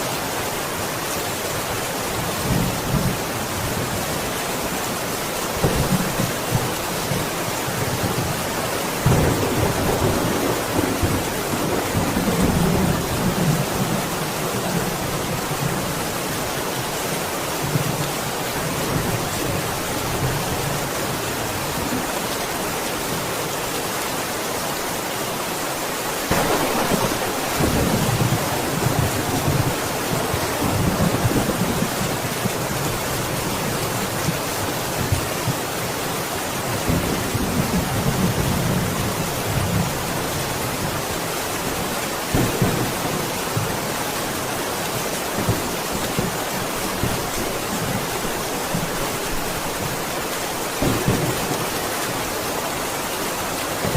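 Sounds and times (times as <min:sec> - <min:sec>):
heavy rain: 0:00.0 - 0:53.9
thunder rumbling: 0:09.0 - 0:16.0, 0:26.3 - 0:32.7, 0:42.3 - 0:43.8, 0:50.7 - 0:52.3.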